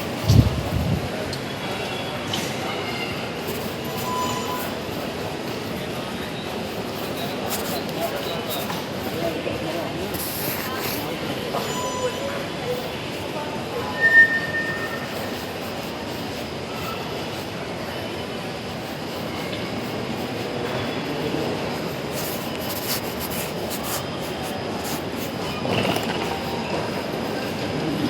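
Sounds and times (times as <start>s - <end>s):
train wheels rumbling on track: 0.0s - 28.0s
high squeal: 13.8s - 15.4s.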